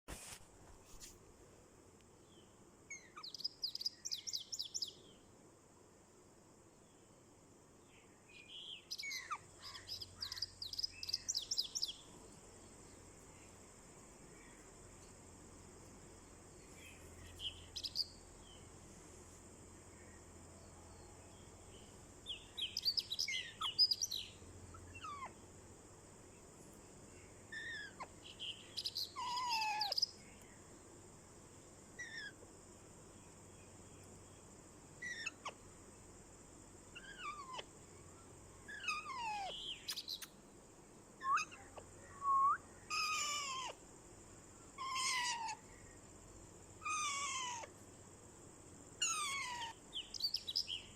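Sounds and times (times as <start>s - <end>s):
parrot squawking and chirping: 29.1s - 30.0s, 44.8s - 45.5s, 46.8s - 47.7s, 49.0s - 49.8s.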